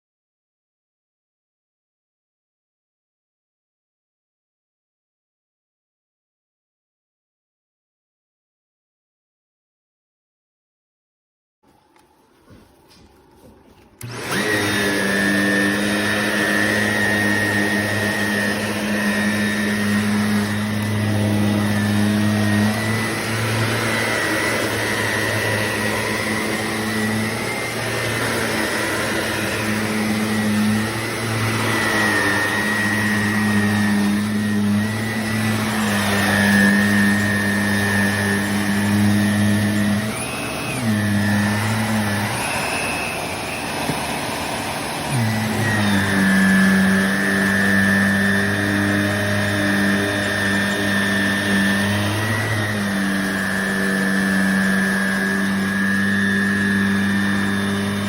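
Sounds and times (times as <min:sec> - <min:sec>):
vacuum cleaner running: 0:11.8 - 0:58.0.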